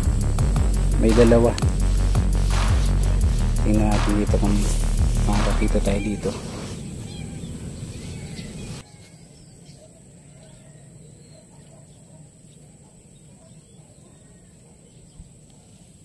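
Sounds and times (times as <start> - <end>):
low rumble: 0.0 - 5.9
distant bird calls: 0.0 - 16.0.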